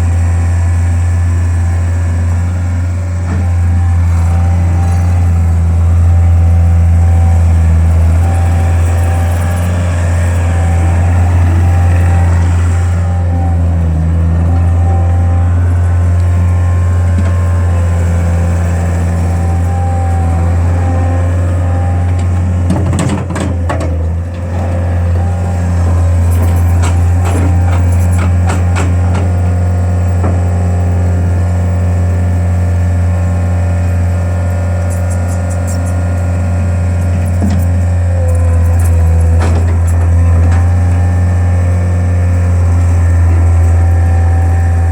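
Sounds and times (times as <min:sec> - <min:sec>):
skid steer engine running: 0:00.0 - 0:44.9
clanking and rattling: 0:07.0 - 0:30.5, 0:34.9 - 0:41.8.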